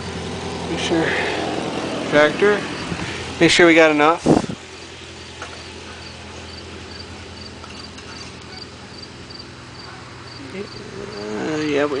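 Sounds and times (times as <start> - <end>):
cricket chirping: 5.2 - 11.4.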